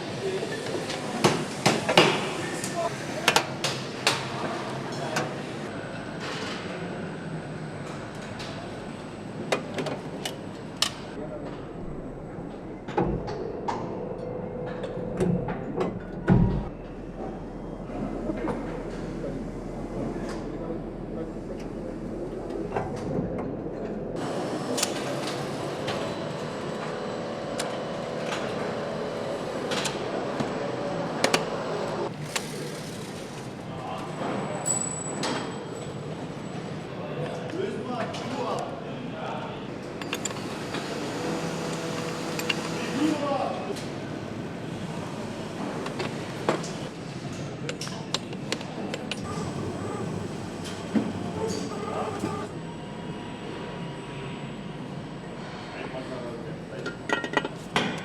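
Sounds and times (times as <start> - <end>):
machinery humming: 0.0 - 34.6, 39.6 - 47.6, 48.7 - 57.0
clicks and knocks of tools: 31.2 - 31.6, 41.7 - 42.8.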